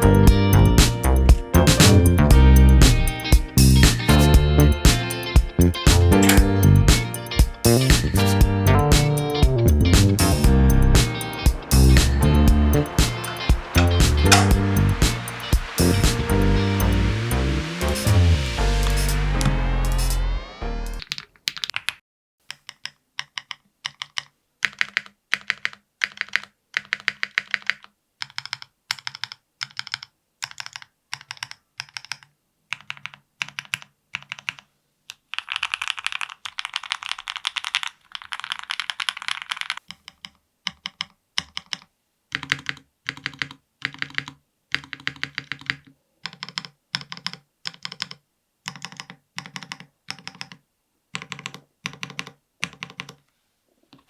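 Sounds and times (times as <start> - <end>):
keyboard keys clacking: 0.0 - 20.2.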